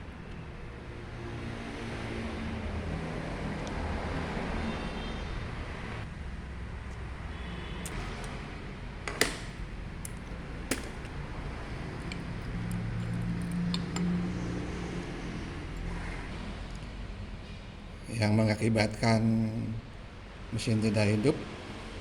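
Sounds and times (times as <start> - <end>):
steady background hum: 0.0 - 22.0
tools and parts handled: 7.9 - 14.1
sharp clicks: 9.1 - 14.1.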